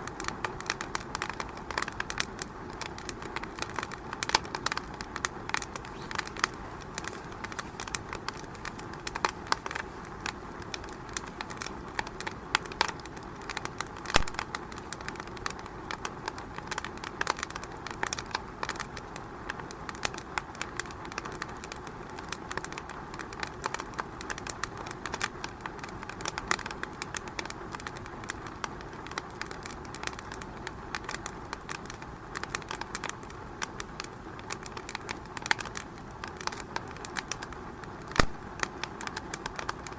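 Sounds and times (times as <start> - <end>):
fire hissing: 0.0 - 39.9
wood fire crackling and popping: 0.0 - 39.9.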